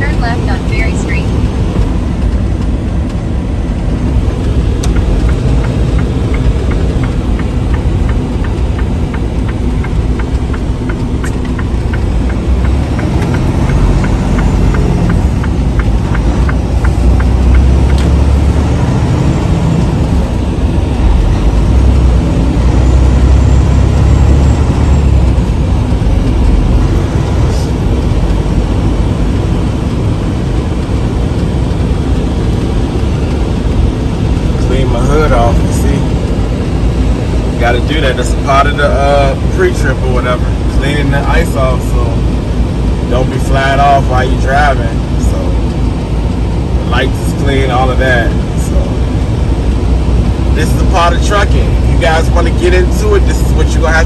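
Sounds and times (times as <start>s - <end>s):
diesel truck engine rumbling: 0.0s - 54.0s
regular ticking: 0.0s - 54.0s.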